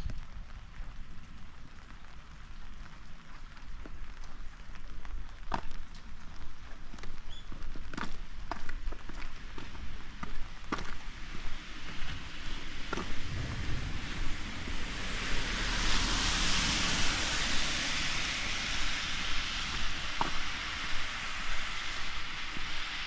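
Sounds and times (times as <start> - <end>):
steady rain falling: 0.0 - 23.0
rushing hiss: 13.0 - 23.0.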